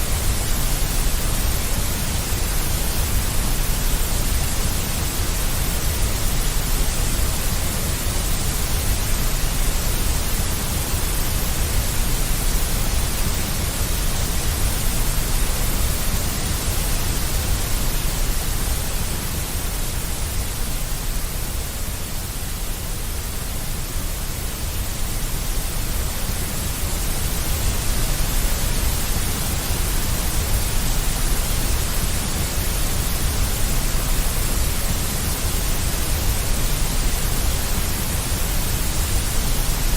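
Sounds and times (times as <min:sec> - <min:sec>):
electronic hiss: 0:00.0 - 0:39.9.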